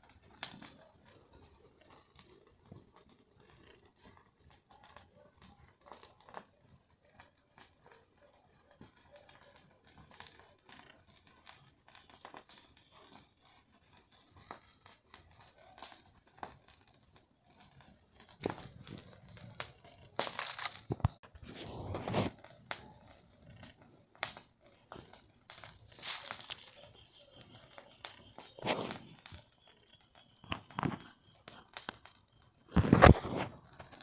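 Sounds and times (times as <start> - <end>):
campfire crackling: 0.0 - 34.0.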